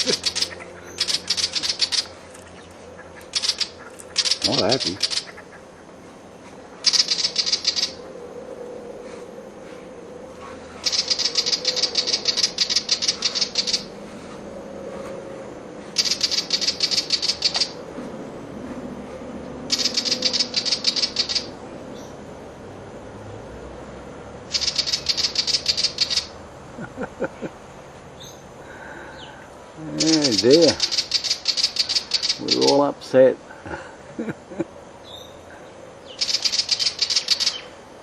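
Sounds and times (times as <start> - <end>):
bird scolding chatter: 0.0 - 8.1, 10.4 - 14.0, 15.9 - 17.8, 19.7 - 22.2, 24.5 - 26.4, 28.2 - 33.3, 35.0 - 37.8.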